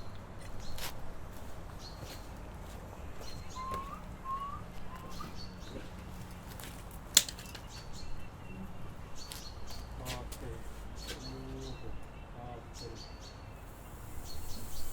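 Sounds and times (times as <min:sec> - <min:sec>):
faint high bird chirps: 0:03.2 - 0:05.8, 0:11.0 - 0:14.9
bird rising whistles: 0:03.5 - 0:05.3, 0:13.6 - 0:14.9.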